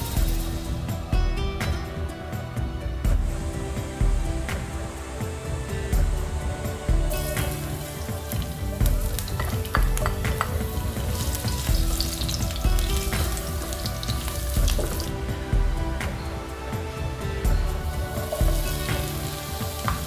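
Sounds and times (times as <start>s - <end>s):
food sizzling in oil: 0.0s - 1.0s, 7.1s - 15.3s, 17.8s - 20.0s.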